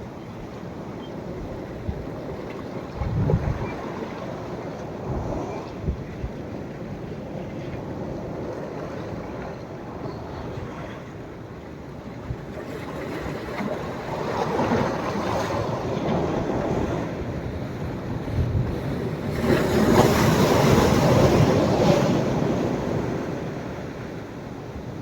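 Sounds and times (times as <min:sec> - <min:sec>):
sea waves breaking on sand: 0:12.5 - 0:24.3.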